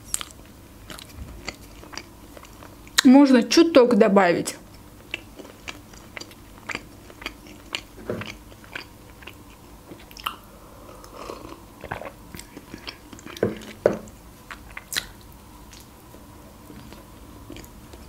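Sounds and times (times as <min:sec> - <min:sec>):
wet chewing clicks and smacks: 0:04.7 - 0:10.4, 0:11.8 - 0:16.0, 0:16.7 - 0:18.0.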